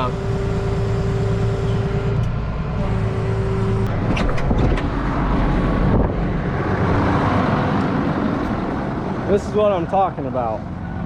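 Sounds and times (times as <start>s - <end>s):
steady whine: 0.0s - 9.1s
tractor engine running: 0.0s - 11.0s.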